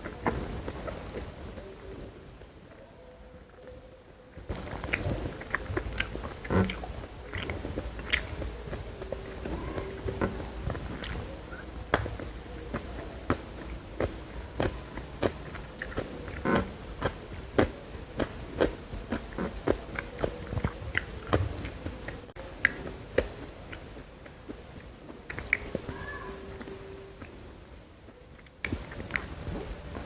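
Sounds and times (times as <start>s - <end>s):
faint steady hum: 0.0s - 30.0s
chewing crunchy food: 4.4s - 27.4s, 28.1s - 30.0s.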